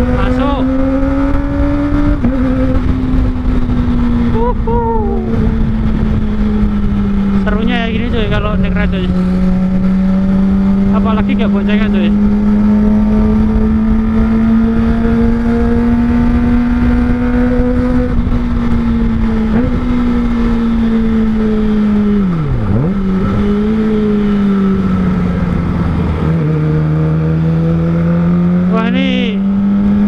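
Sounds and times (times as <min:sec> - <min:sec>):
motorcycle engine at high revs: 0:00.0 - 0:30.0
wind rush: 0:00.0 - 0:30.0.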